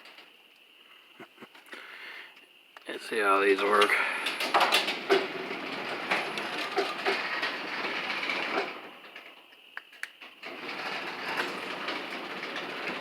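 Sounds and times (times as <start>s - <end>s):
garage door rollers clattering: 3.6s - 9.5s, 10.2s - 13.0s.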